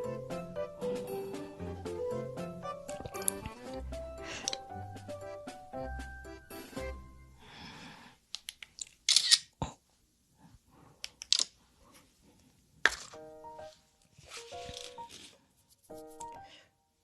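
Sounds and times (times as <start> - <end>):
music snatches: 0.0 - 7.3.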